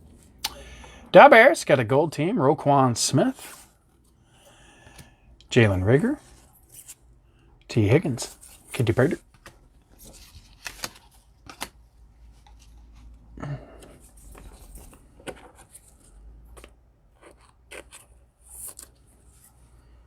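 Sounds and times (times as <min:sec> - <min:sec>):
cards being flipped through: 0:08.4 - 0:13.1.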